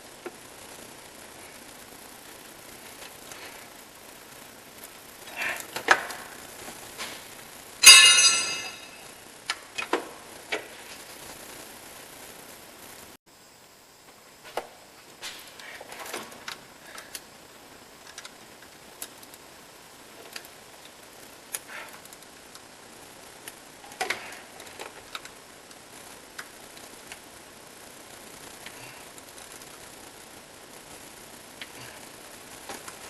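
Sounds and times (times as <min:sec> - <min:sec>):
steady hiss: 0:00.0 - 0:33.0
clicks and metallic knocks: 0:07.8 - 0:09.0.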